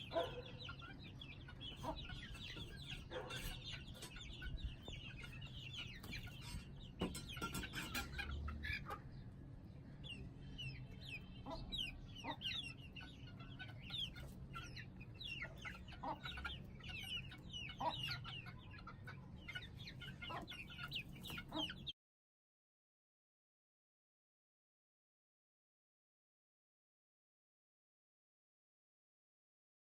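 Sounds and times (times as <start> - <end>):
chicks peeping and clucking: 0.0 - 22.0.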